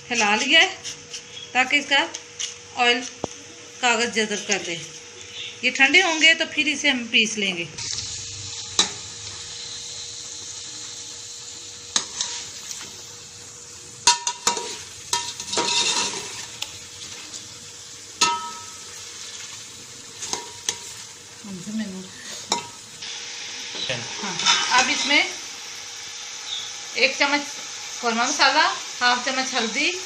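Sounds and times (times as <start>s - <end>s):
chicken sizzling in oil: 7.8s - 30.0s
spoon scraping the pan: 11.9s - 13.0s, 14.0s - 17.4s, 18.2s - 21.1s, 22.2s - 22.8s, 23.7s - 25.2s.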